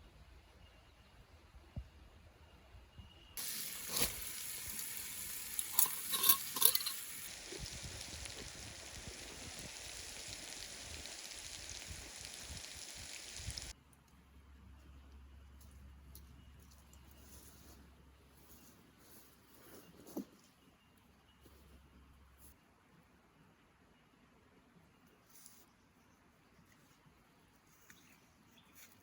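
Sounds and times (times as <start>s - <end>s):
food sizzling in a frying pan: 3.4s - 13.7s.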